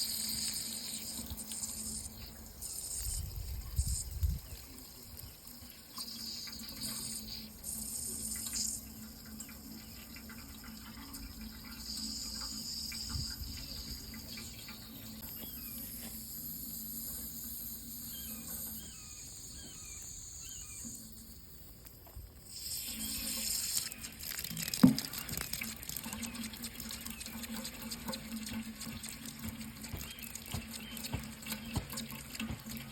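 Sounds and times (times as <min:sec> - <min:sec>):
tap water running into sink: 0:00.0 - 0:15.5, 0:22.6 - 0:32.9.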